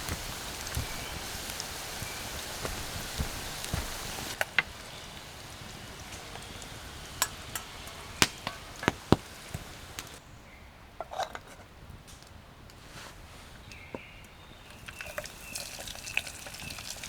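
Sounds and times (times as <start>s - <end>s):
steady hiss: 0.0s - 10.3s.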